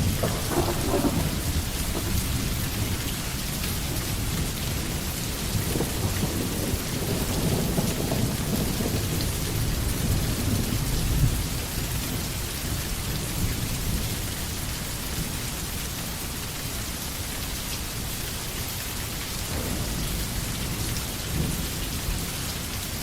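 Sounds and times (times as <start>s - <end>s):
thunder rumble: 0.0s - 11.8s, 19.5s - 23.0s
rain falling on forest: 0.0s - 23.0s.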